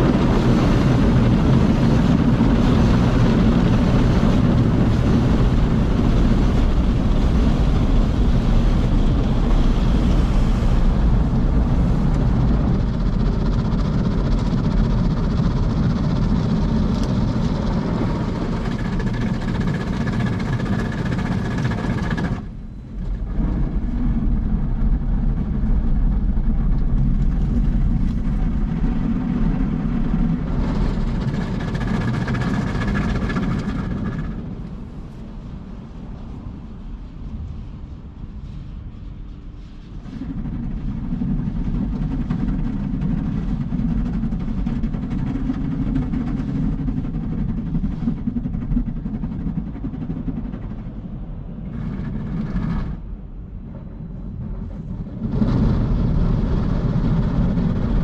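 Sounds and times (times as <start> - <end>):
car wash machine rushing: 0.0 - 37.2.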